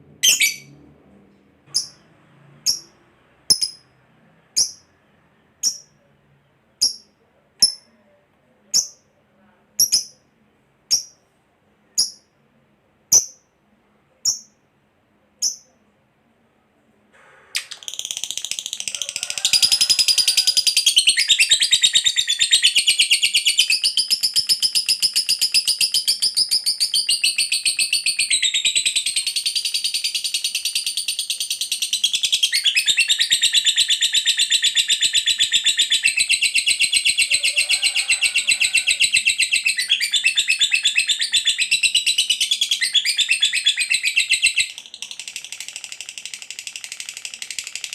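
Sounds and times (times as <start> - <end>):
lovebird chattering trill: 0.2 - 0.7, 1.7 - 2.0, 3.5 - 3.8
lovebird chirping: 0.2 - 0.8, 1.7 - 2.0, 2.6 - 3.9, 4.6 - 4.9, 5.6 - 6.1, 6.7 - 8.0, 8.7 - 9.1, 9.8 - 10.3, 10.9 - 11.2, 11.9 - 12.3, 14.2 - 14.6, 15.4 - 15.8, 20.7 - 45.6.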